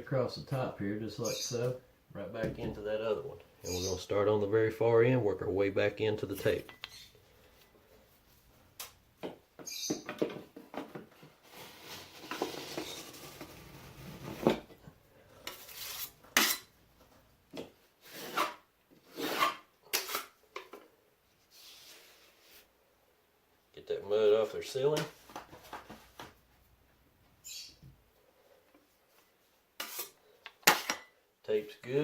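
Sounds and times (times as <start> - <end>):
drywall knife scraping compound: 11.2 - 14.7, 15.4 - 16.7, 18.0 - 20.4, 29.8 - 30.9.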